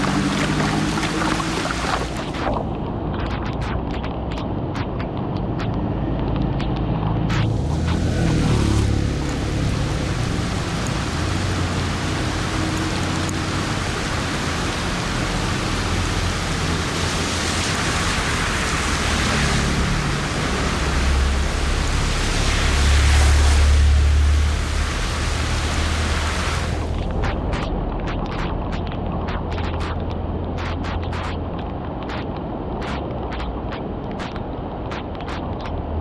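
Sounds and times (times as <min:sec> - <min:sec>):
heavy rain hissing: 0:00.0 - 0:03.7, 0:07.3 - 0:30.0.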